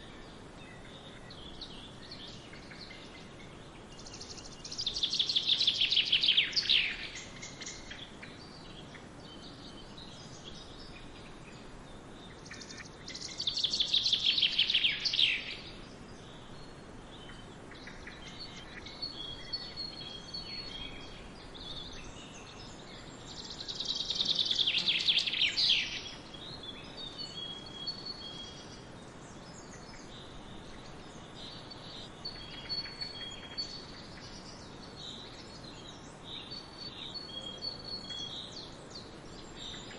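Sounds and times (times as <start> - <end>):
steady background hiss: 0.0 - 39.9
songbird trilling: 12.3 - 16.5, 17.2 - 39.9.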